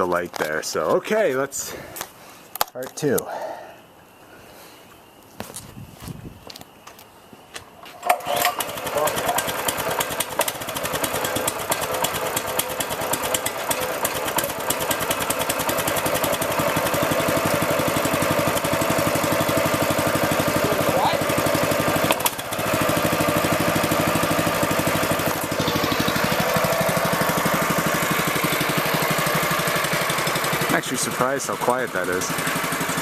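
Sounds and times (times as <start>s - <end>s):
small engine idling: 7.9s - 33.0s.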